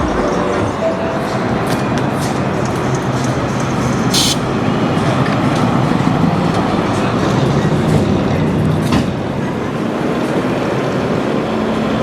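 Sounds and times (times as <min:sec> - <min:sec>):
short sharp hiss: 0:04.1 - 0:04.5.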